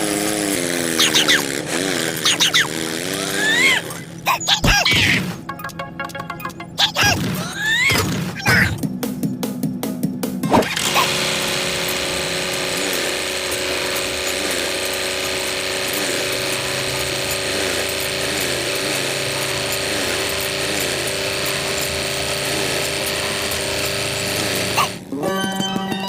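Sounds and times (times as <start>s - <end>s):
electric motor gear whir: 0.0s - 5.2s, 10.4s - 25.1s.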